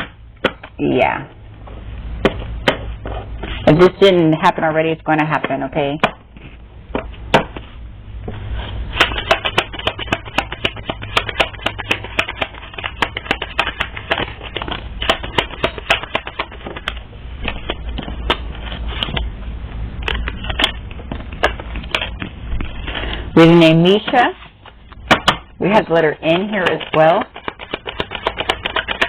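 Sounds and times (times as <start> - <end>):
cards being shuffled: 8.6 - 19.3, 26.3 - 29.0.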